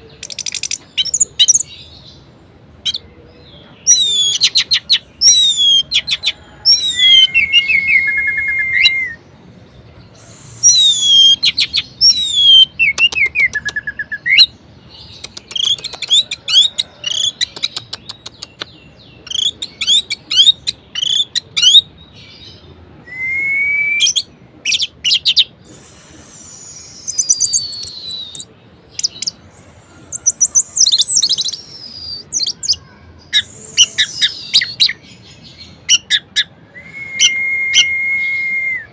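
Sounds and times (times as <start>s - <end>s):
thrush singing whistled phrases: 6.7s - 9.2s, 10.2s - 14.5s, 23.0s - 24.3s, 25.1s - 28.5s, 29.1s - 32.6s, 35.9s - 38.9s.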